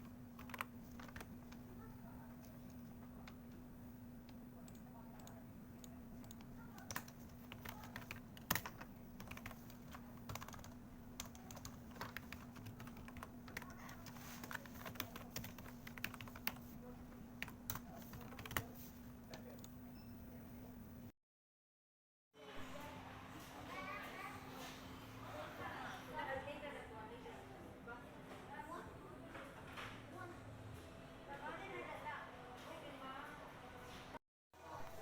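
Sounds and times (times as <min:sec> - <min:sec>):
low electrical hum: 0:00.0 - 0:21.1.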